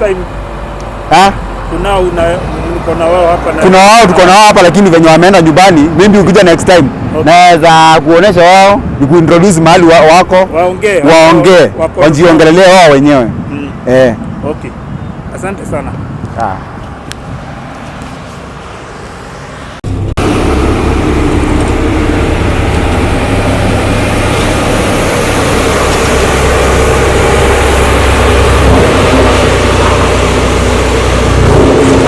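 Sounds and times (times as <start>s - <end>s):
heavy machinery rumbling: 18.7s - 32.0s.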